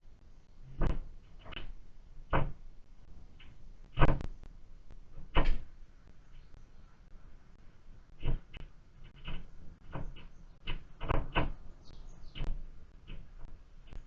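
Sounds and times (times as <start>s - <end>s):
bird pecking at feeder: 8.0s - 11.6s.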